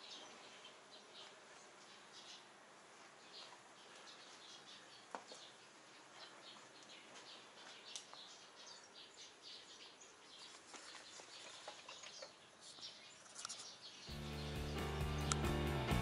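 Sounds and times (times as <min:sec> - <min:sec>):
faint birds chirping: 0:00.0 - 0:16.0
music: 0:14.1 - 0:16.0.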